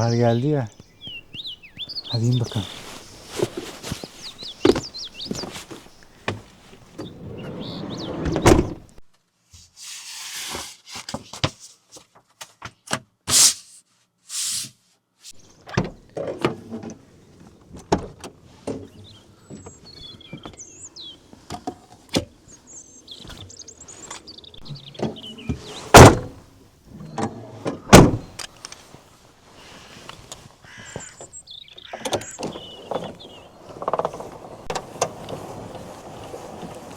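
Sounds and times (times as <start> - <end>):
small birds chirping: 0.0 - 9.0, 18.7 - 26.3, 29.6 - 34.8
objects being handled: 2.0 - 7.1.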